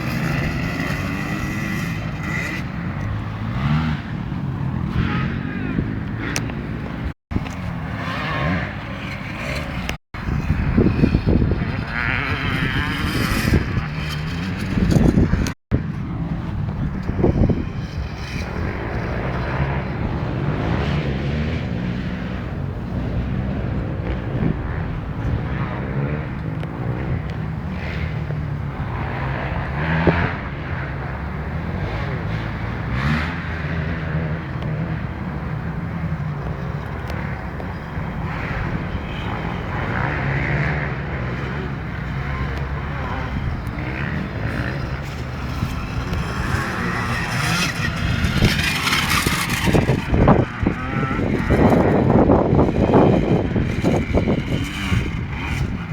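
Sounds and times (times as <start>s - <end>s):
motocross bike engine revving: 0.0s - 7.2s, 7.8s - 55.9s.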